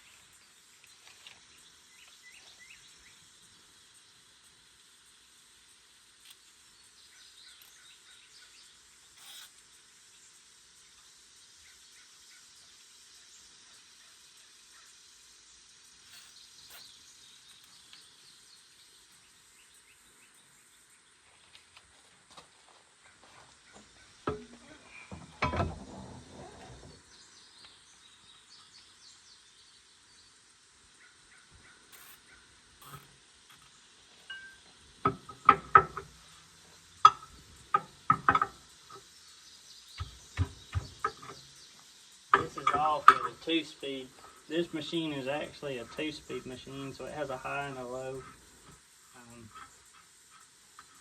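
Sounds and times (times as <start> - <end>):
faint background hiss: 0.0 - 51.0
metal tools clanking: 24.3 - 26.8, 32.8 - 33.1.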